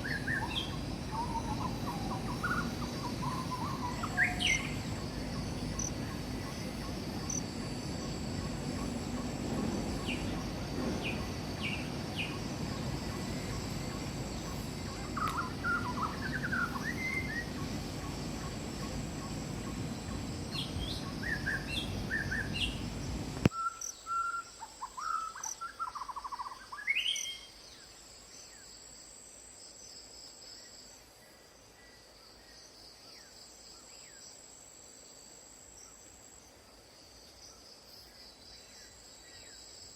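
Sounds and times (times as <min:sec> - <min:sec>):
high-pitched insect trill: 0:00.0 - 0:31.0
low background noise: 0:00.0 - 0:39.9
birds chirping and whistling: 0:14.4 - 0:18.4, 0:19.3 - 0:23.0.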